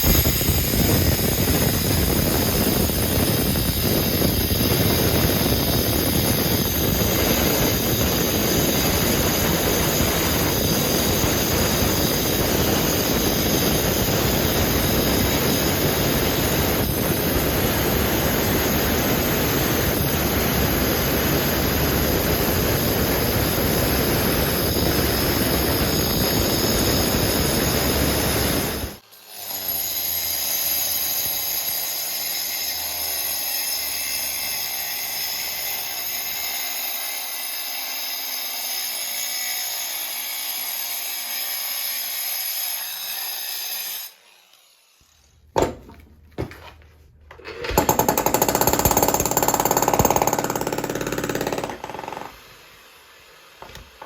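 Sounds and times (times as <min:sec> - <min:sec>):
sharp knocks: 0:45.6 - 0:46.6
demolition hammer chipping concrete: 0:47.6 - 0:52.4.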